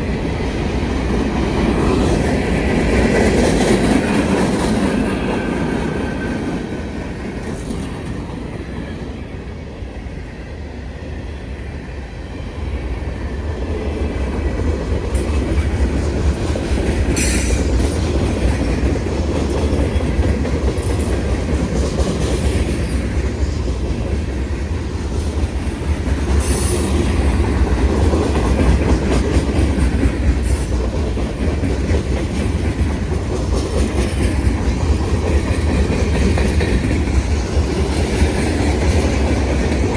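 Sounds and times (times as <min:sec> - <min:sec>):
freight train rumbling past: 0:00.0 - 0:39.9
wheels clacking over rail joints: 0:14.2 - 0:39.9.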